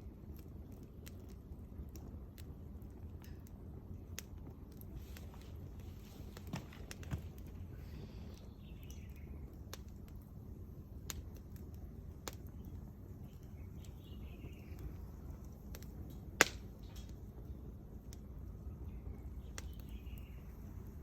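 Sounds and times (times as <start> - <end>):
campfire crackling: 0.0 - 21.0
low steady rumble: 0.0 - 21.0
loud fire pop: 16.1 - 17.2.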